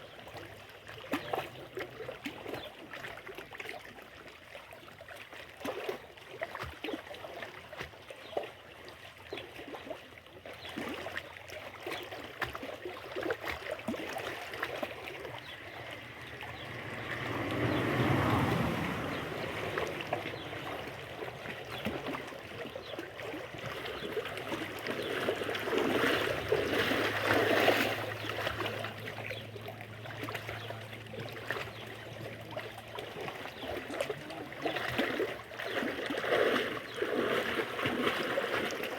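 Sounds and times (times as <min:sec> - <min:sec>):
water lapping and trickling: 0:00.0 - 0:38.9
low hum: 0:15.2 - 0:22.2.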